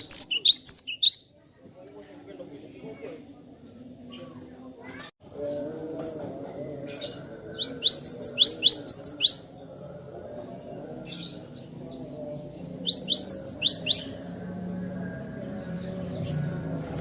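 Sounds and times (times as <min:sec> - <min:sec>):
bird singing whistled notes: 0:00.0 - 0:01.3, 0:07.5 - 0:09.5, 0:12.8 - 0:14.2.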